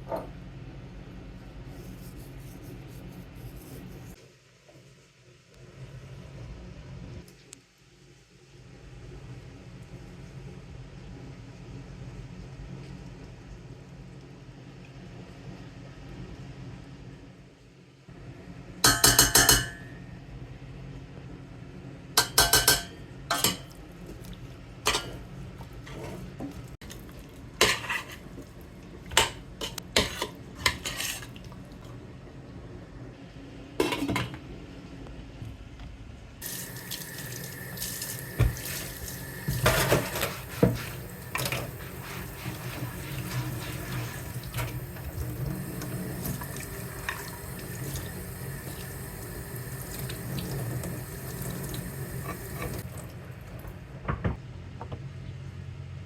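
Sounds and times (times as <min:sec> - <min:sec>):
dishes and cutlery clinking: 0:18.8 - 0:20.0, 0:22.2 - 0:23.8
tap water running into sink: 0:36.4 - 0:53.7.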